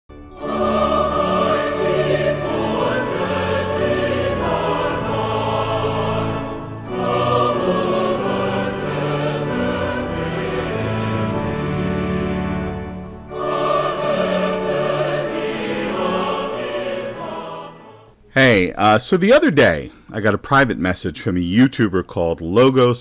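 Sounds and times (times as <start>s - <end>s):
choir singing sustained notes: 0.1s - 18.2s
orchestral accompaniment: 0.2s - 17.9s.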